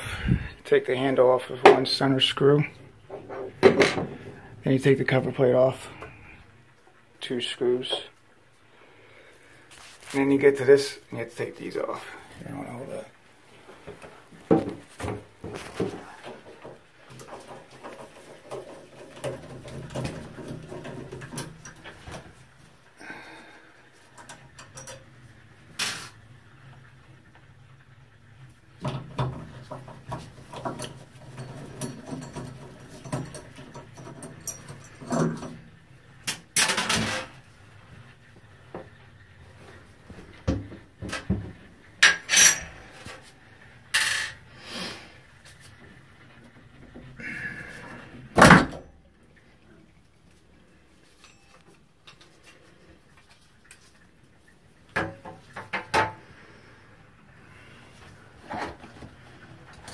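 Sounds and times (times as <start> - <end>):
metal tools clinking and scraping: 24.2 - 25.1, 30.5 - 35.6, 42.0 - 43.3, 43.9 - 44.4, 51.2 - 52.6.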